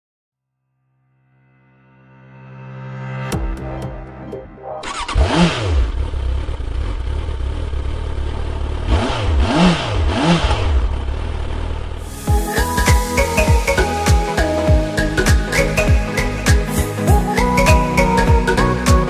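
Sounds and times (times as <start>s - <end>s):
music: 0.6s - 5.2s, 12.0s - 19.0s
motorcycle engine revving: 4.8s - 12.3s.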